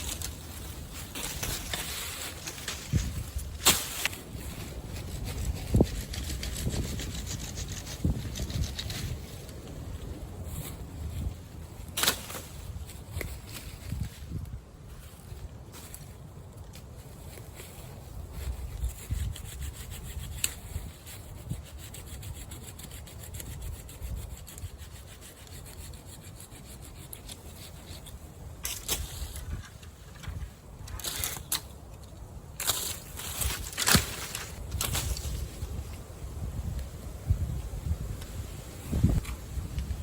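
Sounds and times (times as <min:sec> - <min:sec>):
faint rustle: 0:00.0 - 0:40.0
wind buffeting microphone: 0:02.5 - 0:12.0, 0:18.0 - 0:27.0, 0:33.3 - 0:40.0
hand saw cutting branch: 0:18.8 - 0:29.4, 0:32.6 - 0:35.5.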